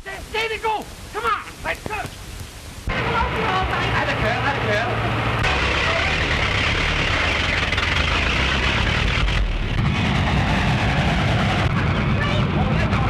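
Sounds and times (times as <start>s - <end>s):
vehicle engine running: 2.9s - 13.0s.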